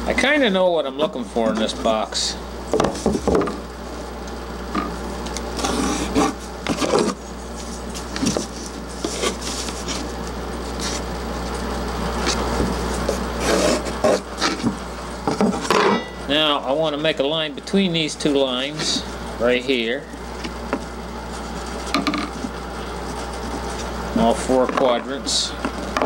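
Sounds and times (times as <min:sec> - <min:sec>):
steady low hum: 0:00.0 - 0:26.0
pencil scratching on plywood: 0:05.6 - 0:11.1, 0:13.0 - 0:14.7, 0:21.3 - 0:24.4
ruler rubbing and handling: 0:05.6 - 0:11.1, 0:20.4 - 0:23.9.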